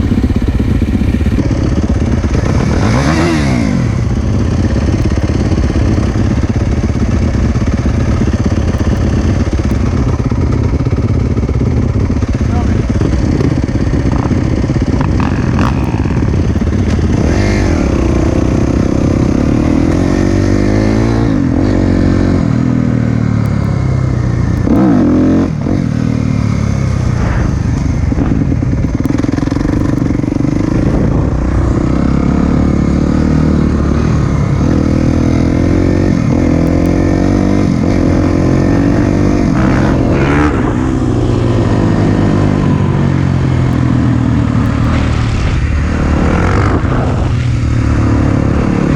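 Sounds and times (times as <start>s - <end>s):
dirt bike engine revving: 0.0s - 23.3s, 24.1s - 48.9s.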